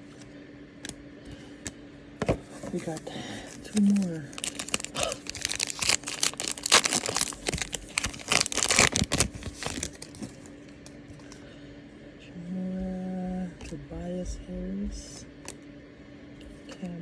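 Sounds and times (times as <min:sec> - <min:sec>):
wrapper tearing and crinkling: 0:02.8 - 0:10.4
person humming: 0:04.9 - 0:05.4.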